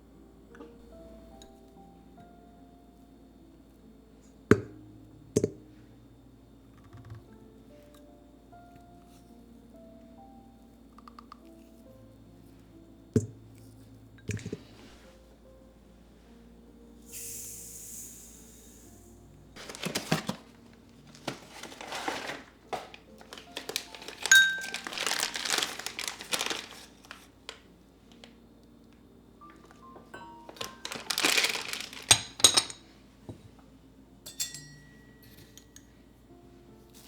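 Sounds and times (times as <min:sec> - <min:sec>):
faint background music: 0:00.0 - 0:37.0
material crinkling and rustling: 0:19.6 - 0:28.3, 0:30.4 - 0:32.7.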